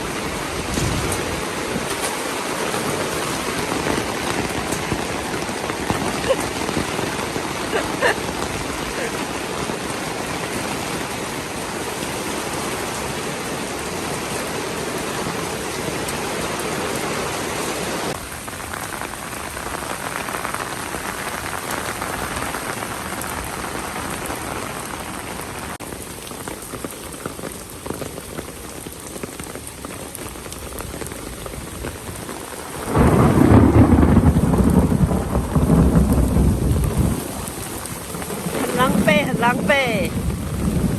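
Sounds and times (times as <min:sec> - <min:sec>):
heavy rain falling: 0:00.0 - 0:40.9
deep rumble of thunder: 0:32.8 - 0:40.9.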